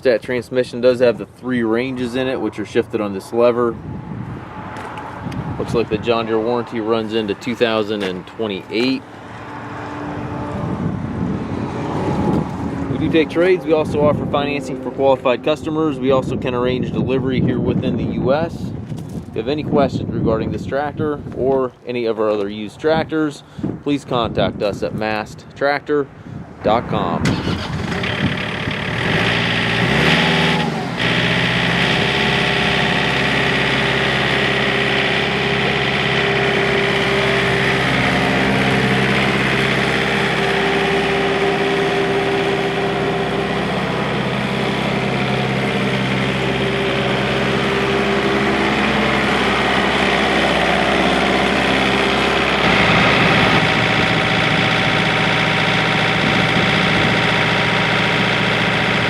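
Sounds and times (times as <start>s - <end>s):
tractor diesel engine idling: 12.3s - 17.1s, 27.3s - 59.0s.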